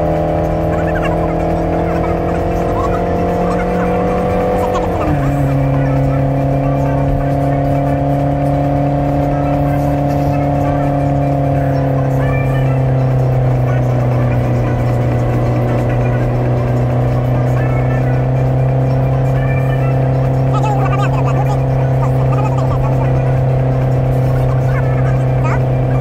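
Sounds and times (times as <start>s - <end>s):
car engine under load: 0.0s - 26.0s
road noise: 0.0s - 26.0s.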